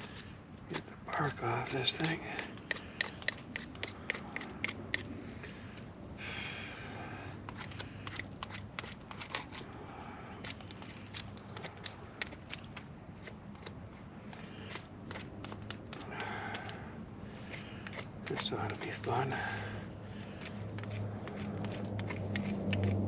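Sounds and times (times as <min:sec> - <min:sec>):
knife scraping bark off stick: 0:00.0 - 0:05.1, 0:07.4 - 0:09.7, 0:10.4 - 0:14.0, 0:14.6 - 0:16.8, 0:17.5 - 0:19.3, 0:20.3 - 0:23.0.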